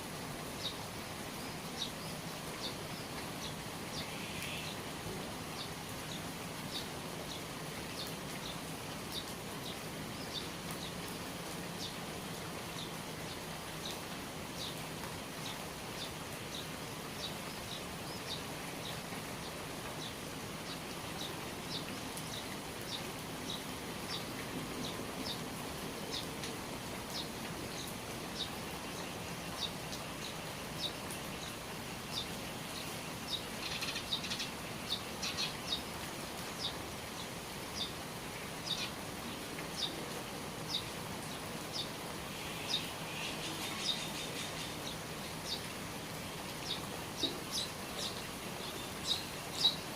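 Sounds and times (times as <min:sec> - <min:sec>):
steady rain: 0:00.0 - 0:49.9
small bird chirping: 0:46.6 - 0:49.9.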